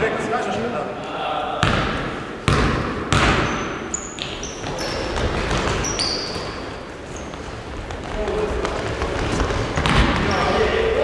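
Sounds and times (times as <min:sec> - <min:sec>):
basketballs bouncing on court: 0:01.6 - 0:10.9
shoes squeaking on court floor: 0:02.5 - 0:11.0.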